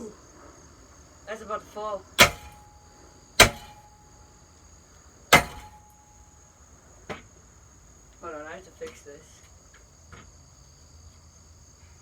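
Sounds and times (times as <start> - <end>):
hammer striking metal: 2.2 - 2.7, 3.4 - 3.9, 5.4 - 5.9.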